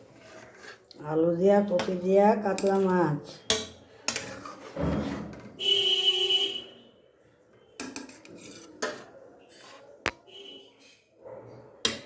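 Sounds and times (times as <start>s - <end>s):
metal dishes and cutlery clattering: 2.5s - 5.4s, 7.8s - 9.2s.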